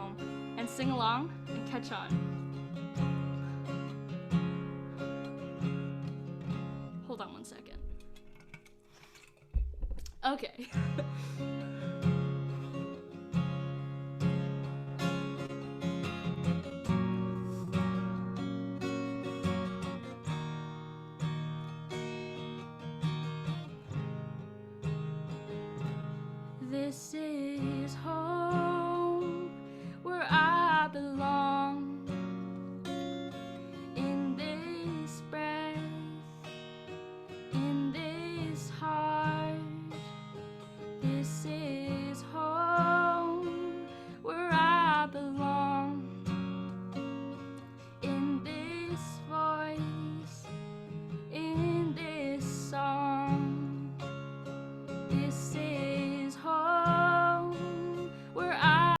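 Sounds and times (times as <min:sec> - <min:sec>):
strummed acoustic guitar: 0:00.0 - 0:59.0
person singing with vibrato: 0:26.6 - 0:32.0, 0:55.1 - 0:59.0.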